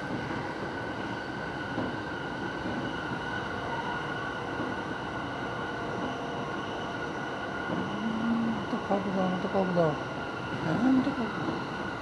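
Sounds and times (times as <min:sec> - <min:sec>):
train wheels rumbling on rail: 0:00.0 - 0:12.0
steady high tone: 0:07.7 - 0:09.0.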